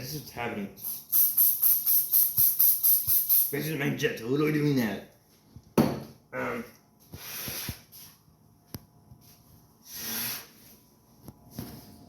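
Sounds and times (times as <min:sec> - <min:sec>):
breathy hissing bursts of air: 0:00.8 - 0:03.5, 0:07.1 - 0:08.1, 0:09.8 - 0:10.7.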